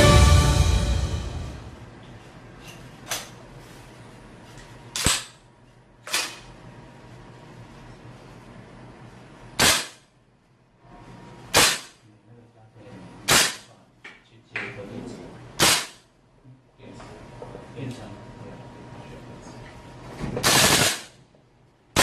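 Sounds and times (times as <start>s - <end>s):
airsoft rifle shots: 5.0s - 5.4s, 9.6s - 10.1s, 11.5s - 12.0s, 13.3s - 13.7s, 15.6s - 16.0s, 20.4s - 21.2s.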